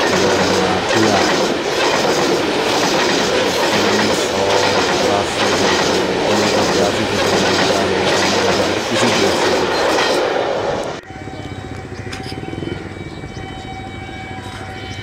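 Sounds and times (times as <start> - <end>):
train wheels clattering on rail: 0.0 - 11.0
faint held tone: 11.0 - 15.0.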